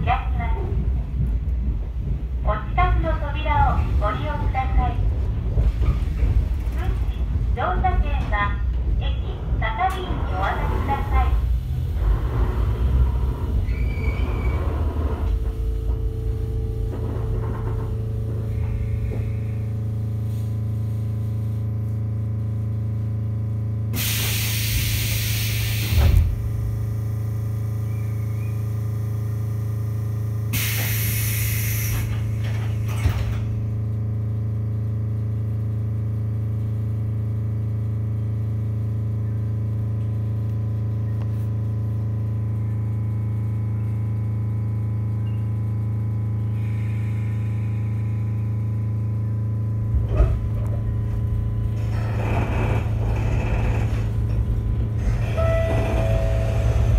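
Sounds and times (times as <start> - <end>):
train rumble: 0.0 - 56.9.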